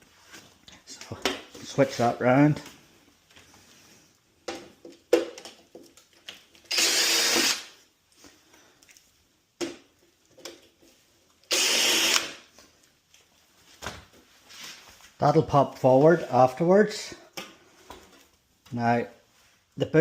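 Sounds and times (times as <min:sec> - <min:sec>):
cordless drill running: 0:06.7 - 0:07.8, 0:11.5 - 0:12.4.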